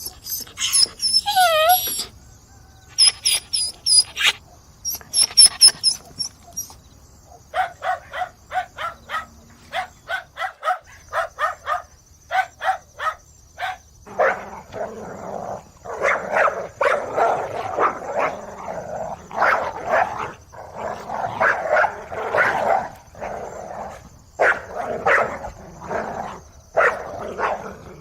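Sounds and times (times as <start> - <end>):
dog whining: 0.0 - 2.2, 2.9 - 6.8
dogs barking and yelping: 0.0 - 2.2, 2.9 - 28.0.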